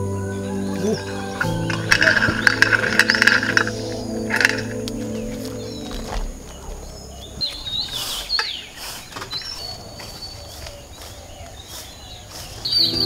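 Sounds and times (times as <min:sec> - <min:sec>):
birds chirping and whistling: 0:00.0 - 0:13.0.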